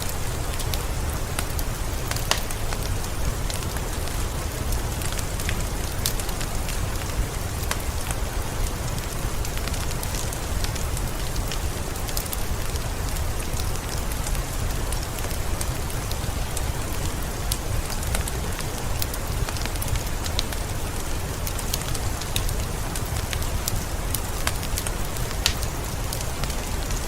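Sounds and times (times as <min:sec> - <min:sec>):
sharp crackles: 0:00.0 - 0:27.0
steady rain: 0:00.0 - 0:27.0.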